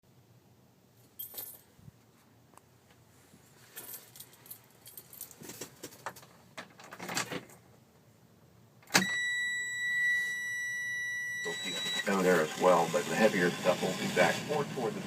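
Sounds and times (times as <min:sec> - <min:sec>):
keys jangling: 0:01.1 - 0:01.7, 0:03.7 - 0:05.7
dashboard warning buzzer: 0:09.0 - 0:14.8.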